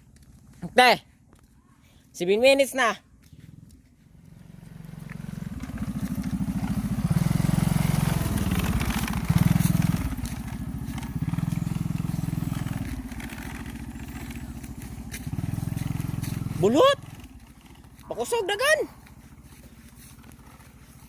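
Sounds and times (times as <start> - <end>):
small motorcycle engine revving: 3.2 - 21.0.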